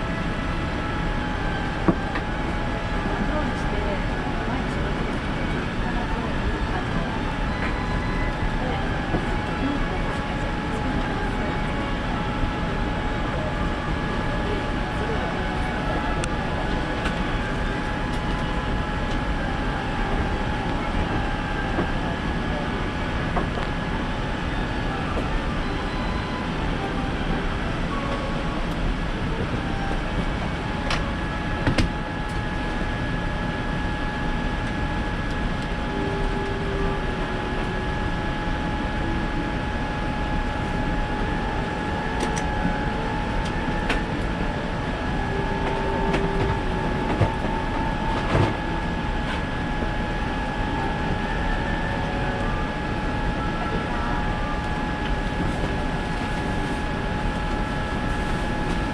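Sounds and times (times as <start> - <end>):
steady whine: 0.0 - 58.9
aircraft cabin air rush: 26.5 - 58.9.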